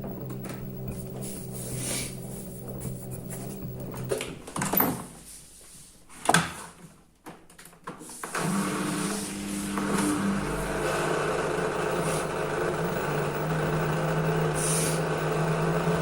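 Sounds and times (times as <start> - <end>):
washing machine motor hum: 0.0 - 4.8, 8.3 - 16.0.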